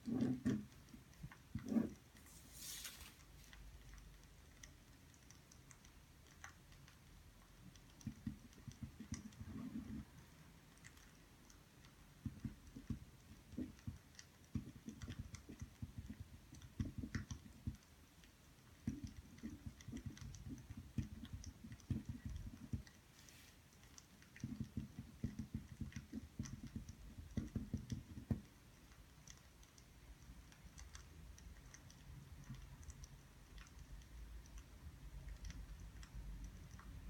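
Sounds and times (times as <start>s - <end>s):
pen writing on paper: 0.0s - 0.7s, 1.6s - 2.8s.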